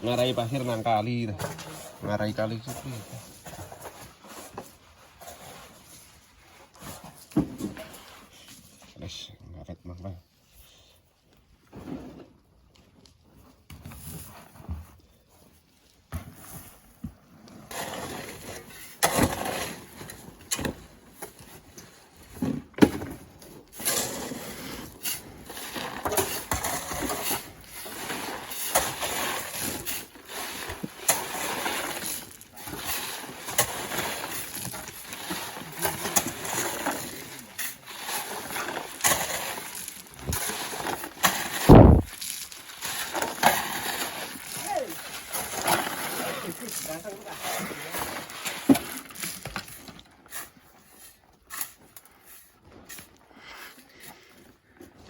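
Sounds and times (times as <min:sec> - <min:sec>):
shovel scraping sand: 0:00.0 - 0:07.3, 0:16.1 - 0:54.3
heavy thud: 0:41.7 - 0:42.1.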